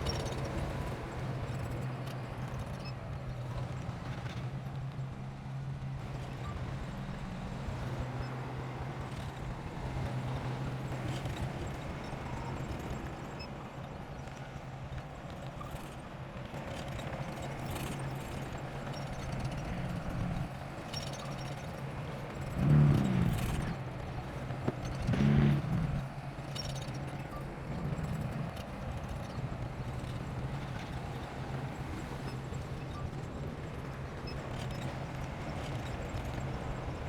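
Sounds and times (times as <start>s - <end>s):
bulldozer diesel engine humming: 16.9s - 37.0s.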